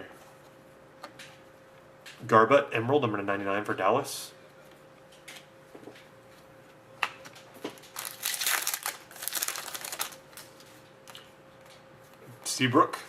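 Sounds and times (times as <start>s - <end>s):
plastic packaging crinkling: 7.7s - 11.2s.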